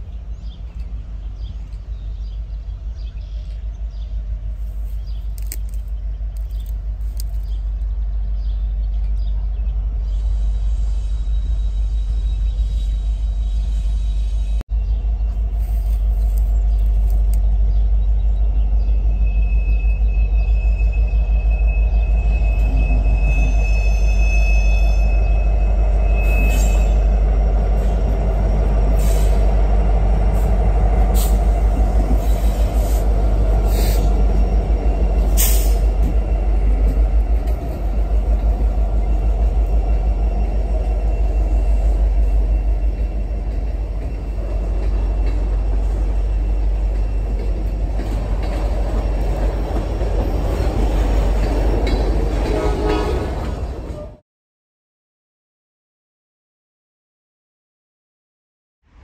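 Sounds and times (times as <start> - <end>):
train rumbling past: 0.0 - 54.2
high wheel squeal: 19.1 - 29.6, 32.2 - 37.0, 38.7 - 53.2.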